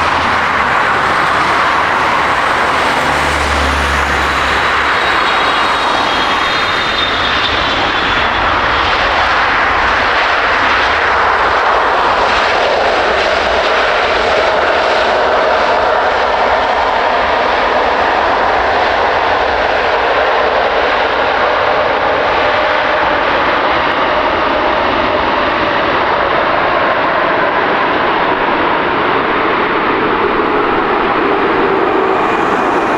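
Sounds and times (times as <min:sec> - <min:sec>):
jet engines running: 0:00.0 - 0:10.8, 0:28.6 - 0:32.9.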